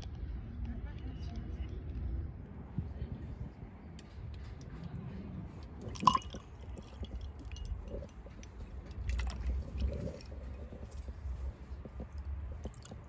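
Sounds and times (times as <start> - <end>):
squishy wet handling sounds: 5.8 - 13.0.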